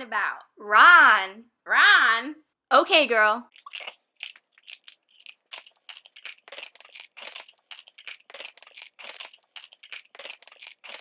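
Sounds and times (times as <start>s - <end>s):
crunchy food being chewed: 3.5s - 11.0s.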